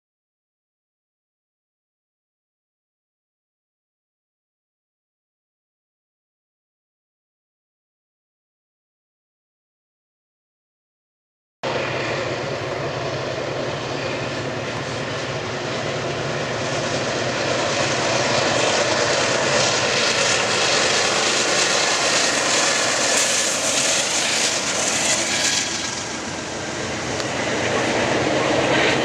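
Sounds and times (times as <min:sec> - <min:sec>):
diesel locomotive engine drone: 0:11.6 - 0:29.0
wheels rushing on rail: 0:11.7 - 0:29.0.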